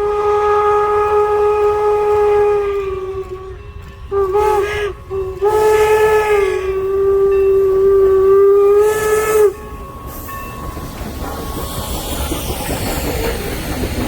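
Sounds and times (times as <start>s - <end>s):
steam whistle blasts: 0.0s - 10.4s
train hiss and running noise: 0.0s - 14.0s.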